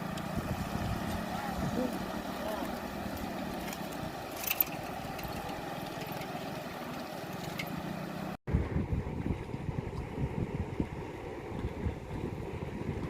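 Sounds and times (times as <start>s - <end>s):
wind buffeting microphone: 0.0s - 6.6s, 8.5s - 13.0s
floodwater rushing: 0.0s - 8.4s.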